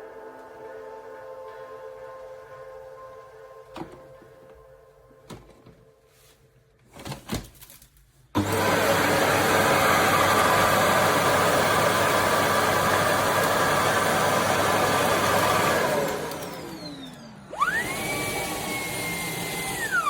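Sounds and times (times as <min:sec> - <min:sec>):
vacuum cleaner motor whining: 0:08.4 - 0:20.0.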